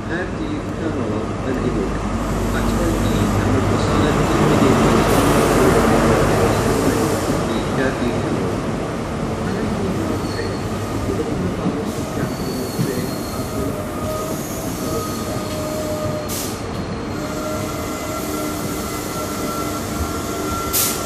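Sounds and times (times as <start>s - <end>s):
train rumble: 0.0s - 21.0s
train wheels squealing: 10.0s - 11.3s, 11.9s - 21.0s.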